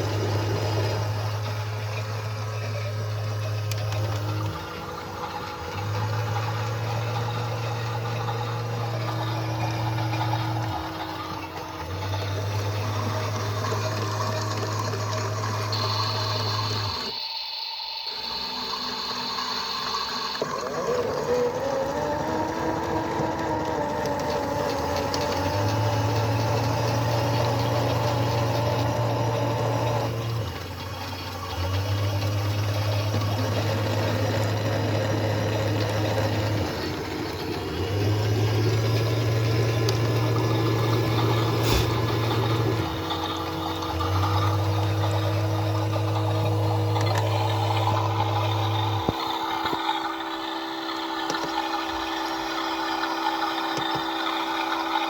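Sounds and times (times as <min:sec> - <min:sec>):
washing machines running: 0:00.0 - 0:55.0
low pump hum: 0:20.4 - 0:55.0.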